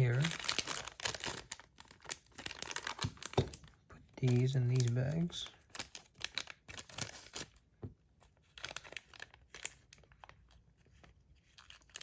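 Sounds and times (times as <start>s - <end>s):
plastic bags crinkling: 0.0s - 7.5s, 8.6s - 10.4s.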